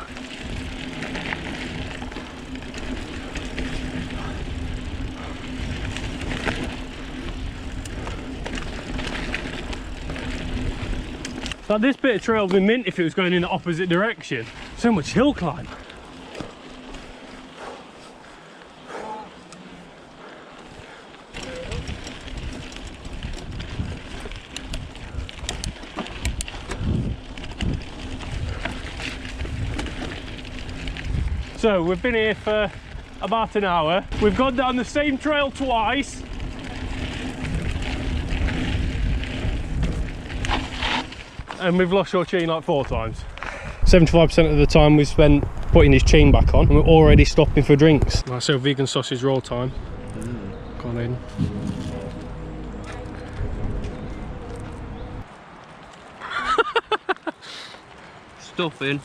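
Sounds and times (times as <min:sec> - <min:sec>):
low hum: 0:00.0 - 0:11.6, 0:49.4 - 0:55.3
bike tyre and wind rush: 0:00.0 - 0:59.0.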